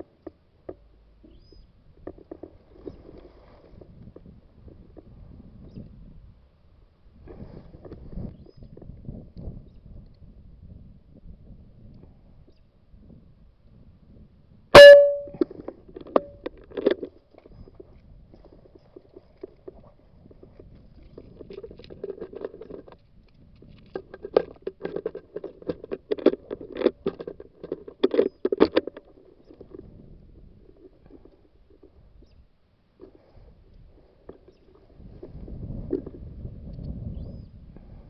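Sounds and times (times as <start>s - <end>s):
metallic ring: 14.8s - 15.5s.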